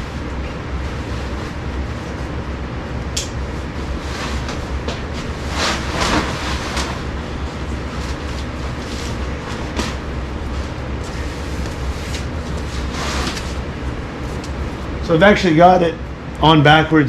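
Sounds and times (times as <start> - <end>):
nylon tent fly rustling: 4.0 - 15.0
steady low rumble: 7.1 - 16.4.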